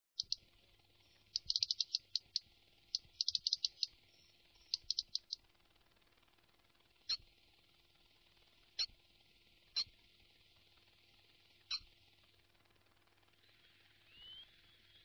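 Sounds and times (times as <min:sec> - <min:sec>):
songbird chirping: 0:00.0 - 0:05.4, 0:11.7 - 0:11.9, 0:13.4 - 0:15.0.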